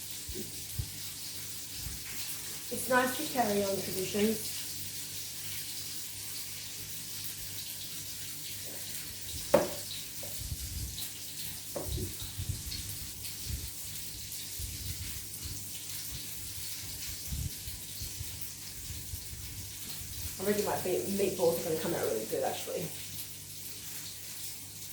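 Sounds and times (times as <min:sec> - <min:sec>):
food frying in a pan: 0:00.0 - 0:24.9
soft knocks: 0:09.5 - 0:09.8.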